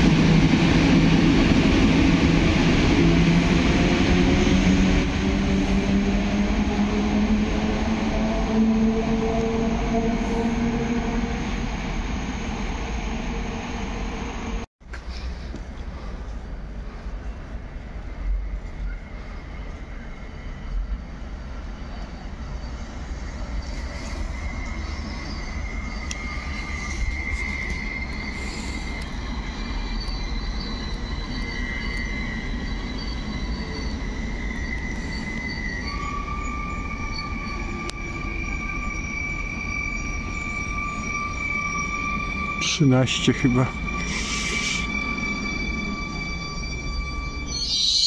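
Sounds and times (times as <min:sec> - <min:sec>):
electric train rumble: 0:00.0 - 0:48.0
high-pitched steady tones: 0:22.8 - 0:48.0.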